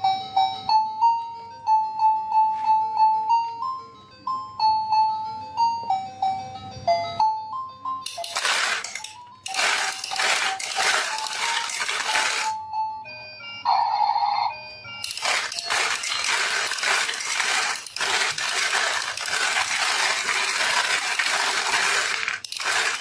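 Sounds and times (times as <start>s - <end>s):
tinkly background music: 0.0s - 22.0s
marbles rattling down wooden run: 8.1s - 12.6s, 15.0s - 23.0s.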